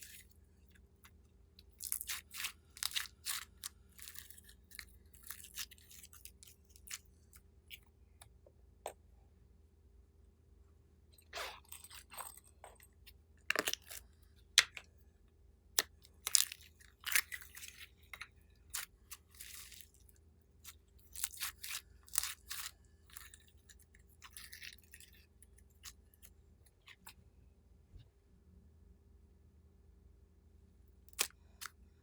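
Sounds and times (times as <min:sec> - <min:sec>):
slime squished by hand: 0:01.6 - 0:07.1.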